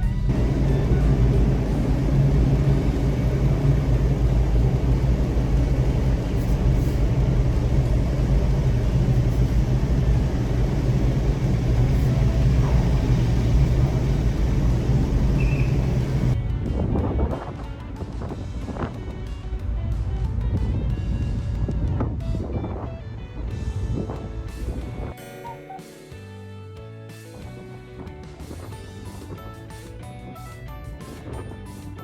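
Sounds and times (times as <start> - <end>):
engine low rumble: 0.0 - 17.0, 18.4 - 25.1.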